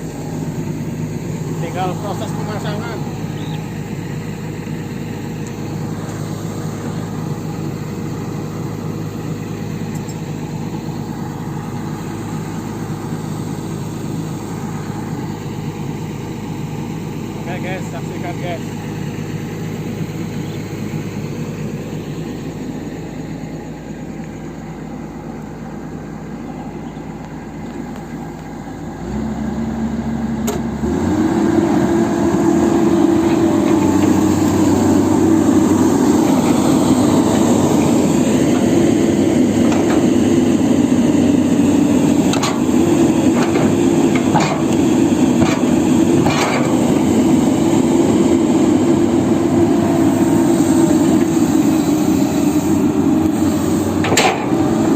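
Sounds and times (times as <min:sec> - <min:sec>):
excavator diesel engine: 0:00.0 - 0:54.9
metal clanks: 0:54.0 - 0:54.6.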